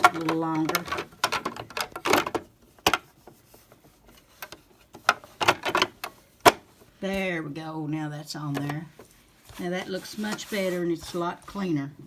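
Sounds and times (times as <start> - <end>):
soft scrapes and knocks: 8.6 - 11.7.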